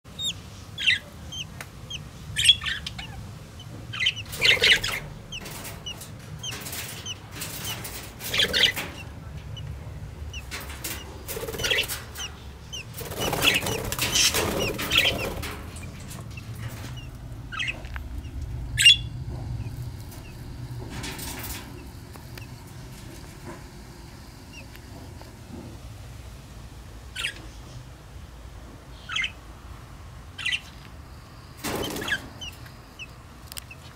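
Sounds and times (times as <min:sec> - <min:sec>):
budgerigars chirping: 0:00.1 - 0:20.4, 0:27.2 - 0:27.5, 0:29.0 - 0:29.4, 0:30.4 - 0:30.8, 0:31.7 - 0:33.9.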